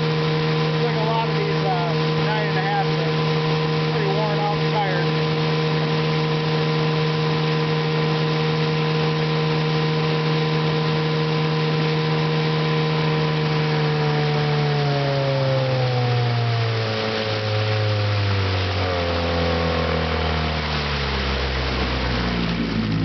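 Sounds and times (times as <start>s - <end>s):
outboard motor running: 0.0s - 23.0s
man talking: 0.7s - 5.1s.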